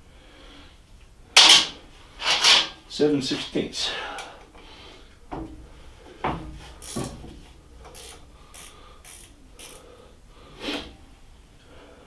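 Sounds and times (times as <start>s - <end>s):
ratchet wrench clicking: 6.8s - 7.2s, 7.8s - 10.0s.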